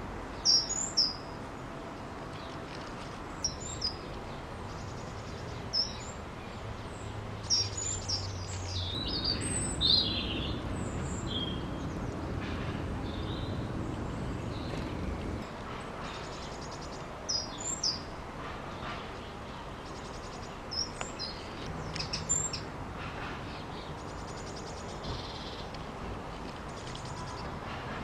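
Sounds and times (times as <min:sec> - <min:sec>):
small birds chirping and trilling: 0:00.4 - 0:01.4, 0:03.3 - 0:15.4, 0:16.0 - 0:18.1, 0:18.8 - 0:22.7.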